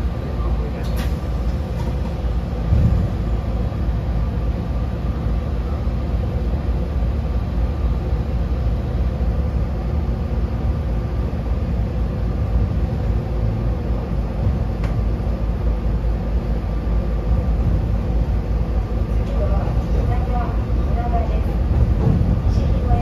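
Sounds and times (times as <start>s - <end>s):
electric train rumble: 0.0s - 23.0s
low thump: 2.7s - 3.2s.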